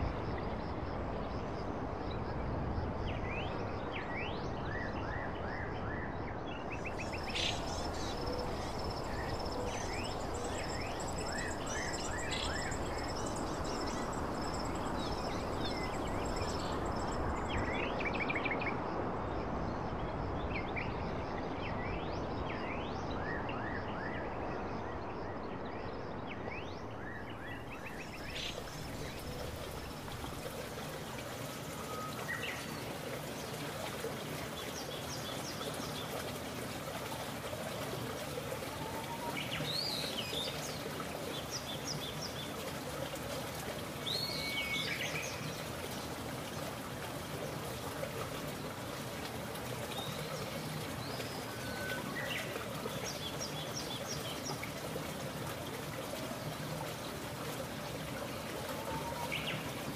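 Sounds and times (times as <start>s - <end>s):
rushing stream water: 0.0s - 59.9s
birds chirping: 6.8s - 17.8s.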